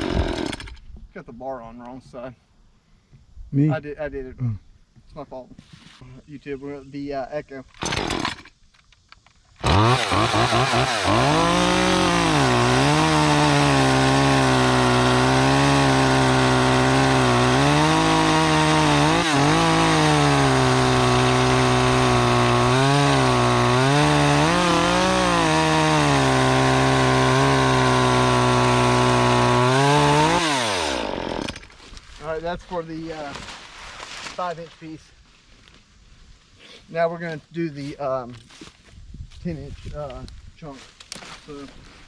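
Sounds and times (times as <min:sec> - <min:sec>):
chainsaw cutting log: 0:00.0 - 0:00.8, 0:07.8 - 0:08.6, 0:09.6 - 0:31.9.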